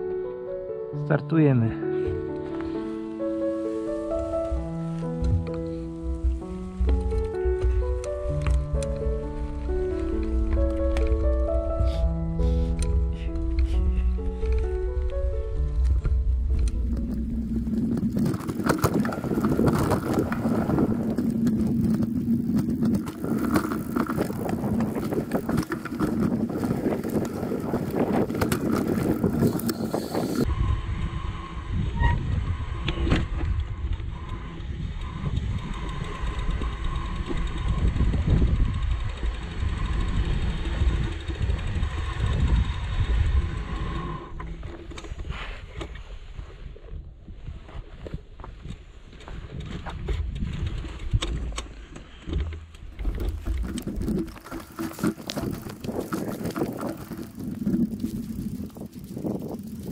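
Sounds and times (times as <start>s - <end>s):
bicycle tyres rumbling: 2.0s - 59.9s
wind buffeting microphone: 4.2s - 45.8s, 46.4s - 59.9s
bicycle knocks and rattles: 15.8s - 30.5s, 48.0s - 59.9s.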